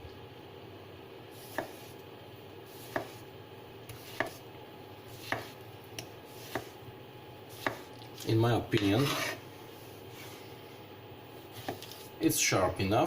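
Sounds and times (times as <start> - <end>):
knife cutting on a board: 1.4 - 2.0, 2.7 - 3.2, 3.9 - 4.4, 5.1 - 5.6, 6.3 - 6.8, 7.5 - 8.0, 8.8 - 9.4, 11.6 - 12.0.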